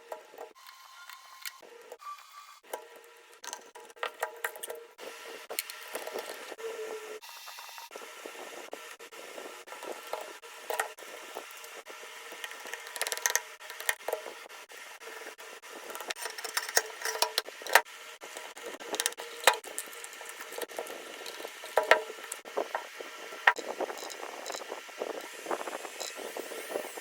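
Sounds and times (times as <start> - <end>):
small tools clicking and rattling: 12.3 - 14.4, 15.1 - 27.0.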